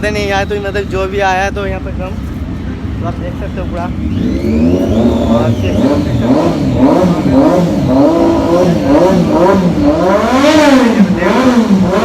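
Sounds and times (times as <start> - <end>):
motorcycle engine revving: 3.2 - 12.0.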